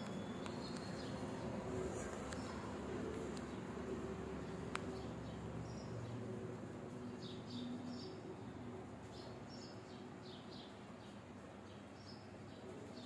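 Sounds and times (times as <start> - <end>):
faint low hum: 0.0 - 13.0
small birds chirping: 0.0 - 13.0.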